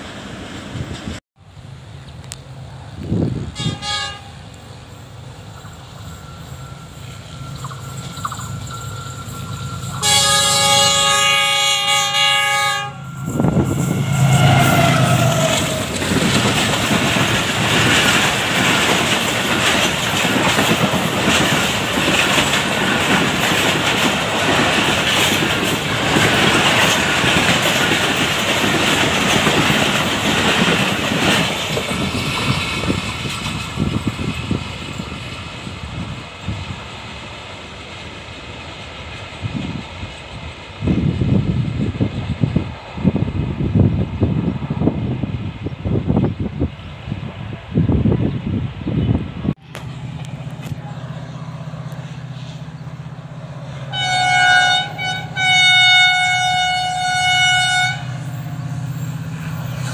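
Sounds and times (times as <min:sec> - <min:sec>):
train coaches rolling past: 0:00.0 - 0:59.9
train rumbling: 0:00.0 - 0:59.9
train horn: 0:03.4 - 0:04.5, 0:09.8 - 0:15.9, 0:53.7 - 0:58.5.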